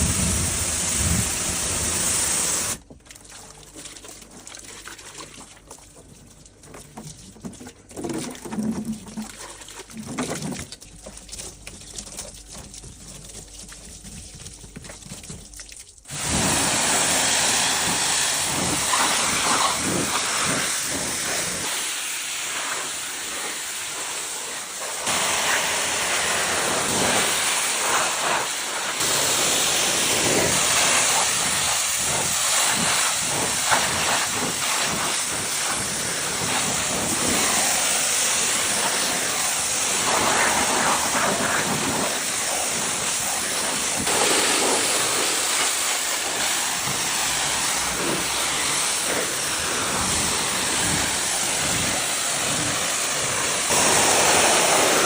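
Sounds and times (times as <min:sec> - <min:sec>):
high-pressure jet hissing: 0:00.0 - 0:02.8, 0:16.1 - 0:55.0.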